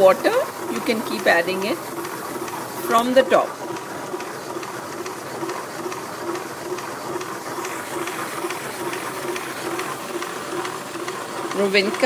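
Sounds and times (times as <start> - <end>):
wet grinder churning: 0.0 - 12.0.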